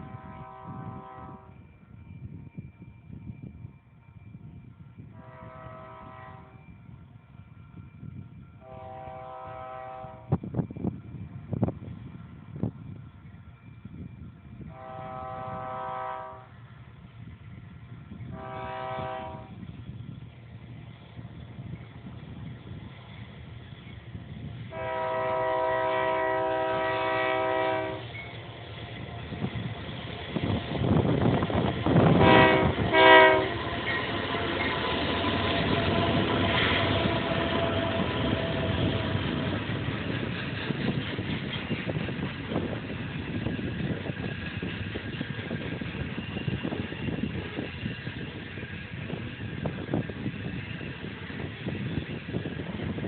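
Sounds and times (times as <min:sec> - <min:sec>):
locomotive air horn blasts: 0:00.0 - 0:01.5, 0:05.2 - 0:06.6, 0:08.6 - 0:10.3, 0:14.7 - 0:16.5, 0:18.3 - 0:19.6, 0:24.7 - 0:28.1, 0:32.0 - 0:39.6
freight train rumbling past: 0:00.0 - 0:53.0.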